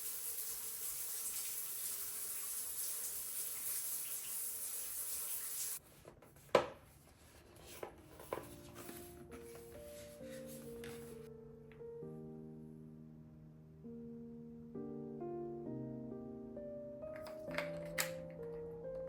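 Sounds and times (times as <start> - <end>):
water running with a hiss: 0.0 - 5.8.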